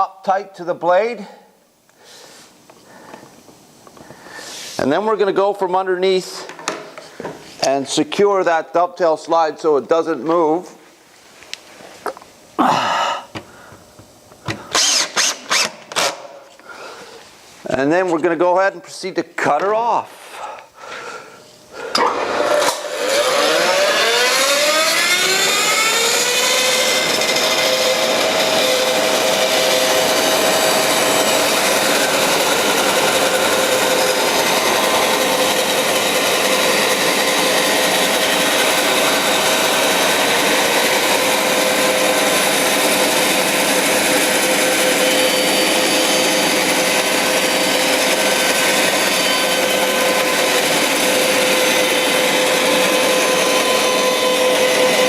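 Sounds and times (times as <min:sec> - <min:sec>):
bandsaw motor whine: 0:14.5 - 0:16.4, 0:21.7 - 0:55.0
bandsaw blade cutting wood: 0:14.6 - 0:16.4, 0:21.8 - 0:55.0.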